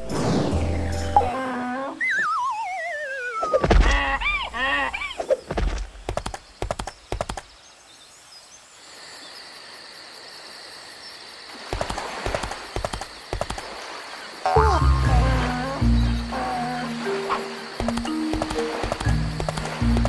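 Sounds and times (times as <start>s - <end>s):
cartoon whistle sliding down: 2.0s - 3.6s
crickets chirring: 2.0s - 20.0s
hoof-like clip-clop clicks: 5.7s - 7.5s, 17.8s - 20.0s.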